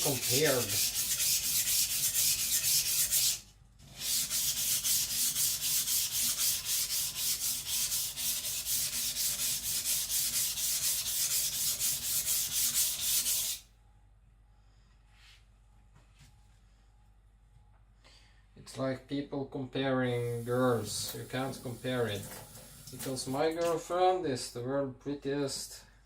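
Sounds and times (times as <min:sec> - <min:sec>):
knife scraping on whetstone: 0:00.0 - 0:03.4.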